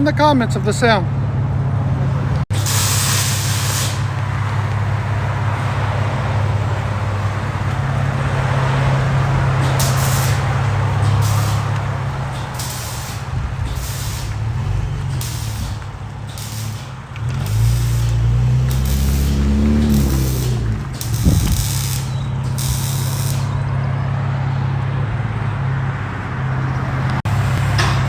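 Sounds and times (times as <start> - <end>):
car exhaust droning: 2.2 - 24.3.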